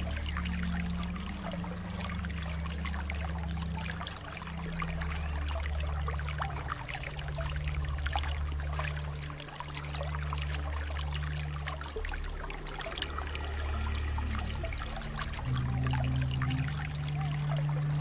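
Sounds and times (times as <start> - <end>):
low droning notes: 0.0 - 18.0
water trickling and dripping: 0.0 - 18.0.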